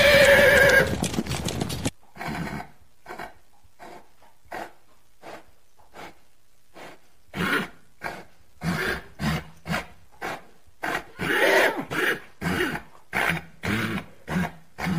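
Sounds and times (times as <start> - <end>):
rhythmic rustling in grass: 0.0 - 2.0.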